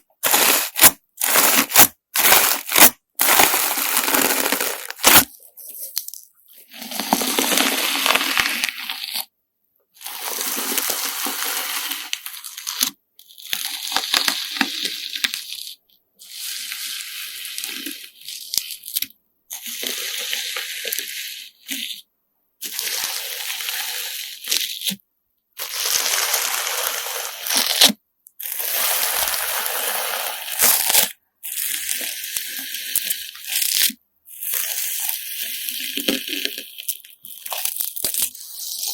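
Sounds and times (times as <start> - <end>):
hands squeezing crunchy slime: 0.0 - 9.3, 9.9 - 15.8, 25.6 - 38.9.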